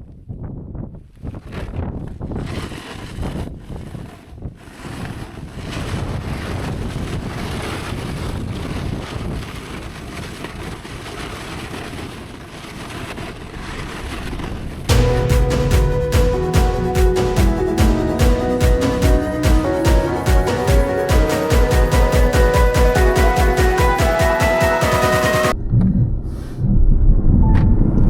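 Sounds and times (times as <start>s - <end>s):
wind buffeting microphone: 0.0s - 21.1s.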